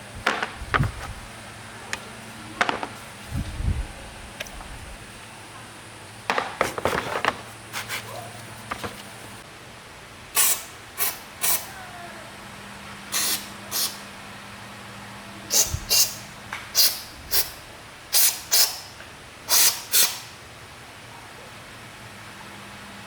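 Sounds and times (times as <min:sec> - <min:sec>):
short sharp hissing bursts: 0:10.3 - 0:11.8, 0:13.1 - 0:14.2, 0:15.5 - 0:20.4.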